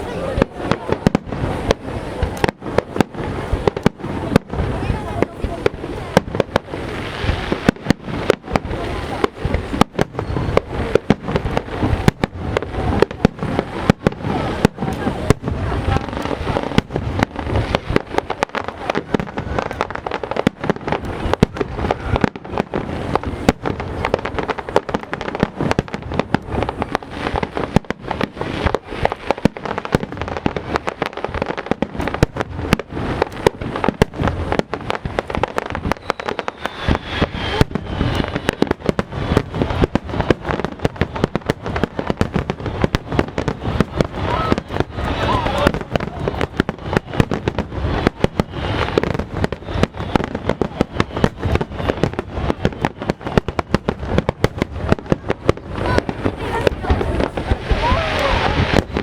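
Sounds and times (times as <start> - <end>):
fireworks explosions and crackling: 0.0 - 59.0.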